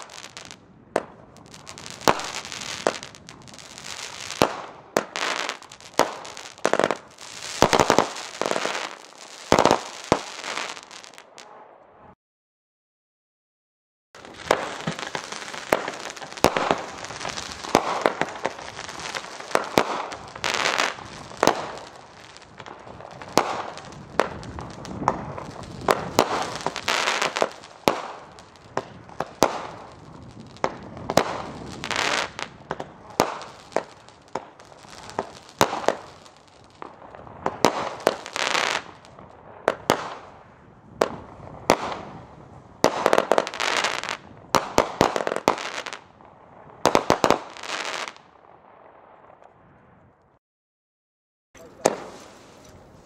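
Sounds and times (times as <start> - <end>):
crackling fizzing tails: 0.0 - 0.6, 1.3 - 11.3, 14.2 - 37.0
firework aerial breaks: 0.0 - 0.6, 14.2 - 39.2, 51.6 - 53.0
firework launch pops: 14.3 - 21.9.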